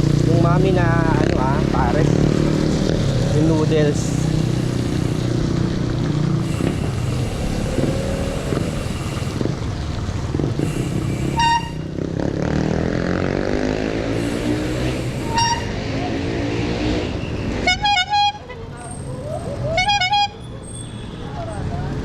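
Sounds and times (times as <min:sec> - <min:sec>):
passing motor vehicle: 0:00.0 - 0:22.0
road traffic: 0:00.0 - 0:22.0
short horn toot: 0:06.4 - 0:09.4, 0:10.6 - 0:11.9, 0:14.2 - 0:15.8.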